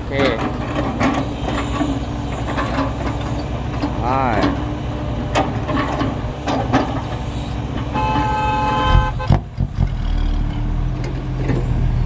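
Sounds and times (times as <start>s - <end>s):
diesel truck engine running: 0.0s - 12.0s
vehicle horn: 7.8s - 9.4s.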